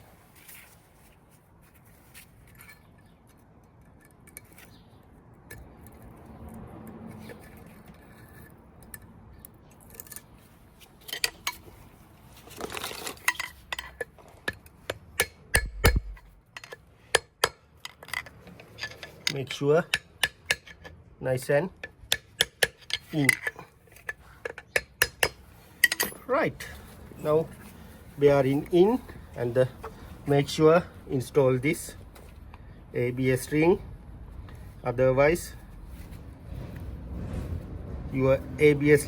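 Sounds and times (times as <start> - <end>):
metal clicks and clinks: 12.6 - 21.0, 21.8 - 26.3
dull low thump: 15.6 - 16.3.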